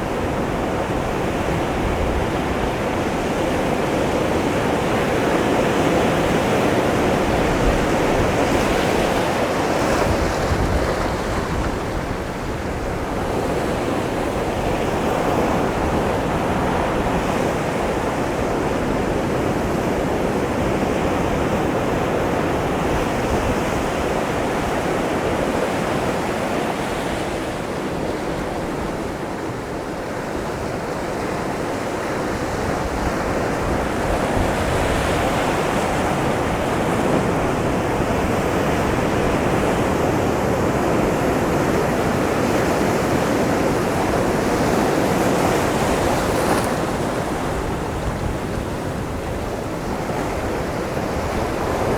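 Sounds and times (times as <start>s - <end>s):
wind rumbling on microphone: 0.0s - 17.8s.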